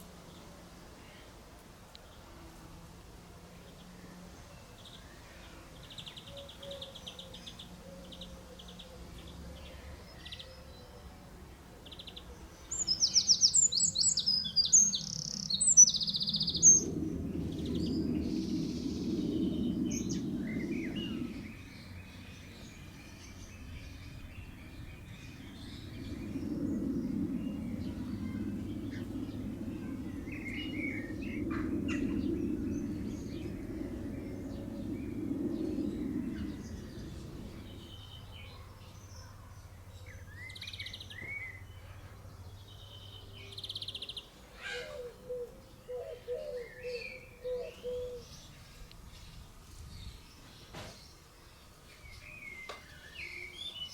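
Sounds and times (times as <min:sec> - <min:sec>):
small birds chirping: 0:11.8 - 0:53.9
low background rumble: 0:14.9 - 0:40.4.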